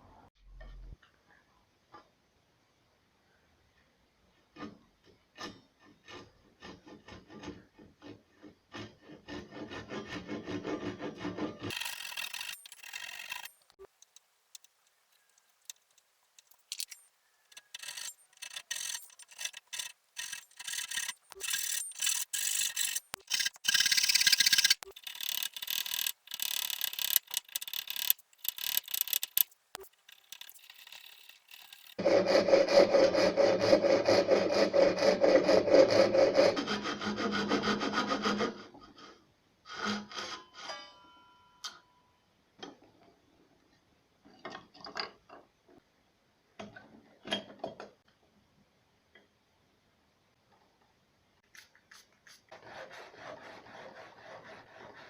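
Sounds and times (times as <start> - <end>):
rasping and scraping on wood: 5.4 - 40.5, 51.6 - 55.0.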